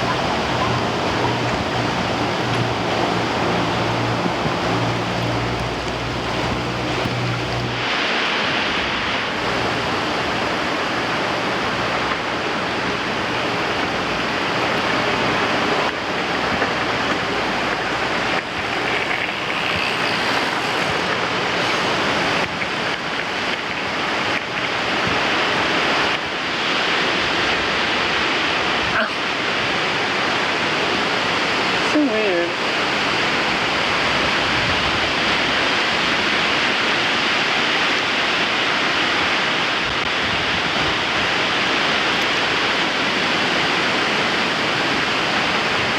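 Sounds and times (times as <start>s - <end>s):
wind buffeting microphone: 0.0s - 29.0s, 33.7s - 36.5s.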